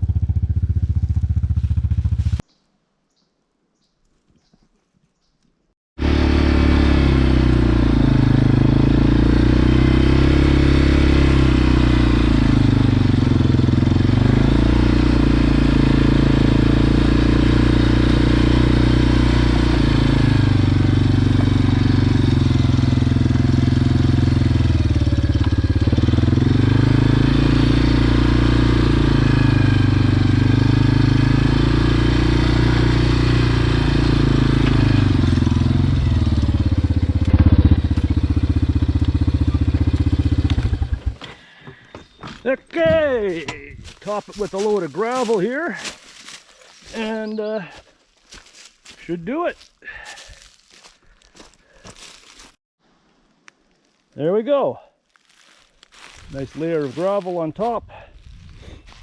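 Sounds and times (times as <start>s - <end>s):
quad engine running: 0.0s - 2.4s, 6.0s - 41.9s.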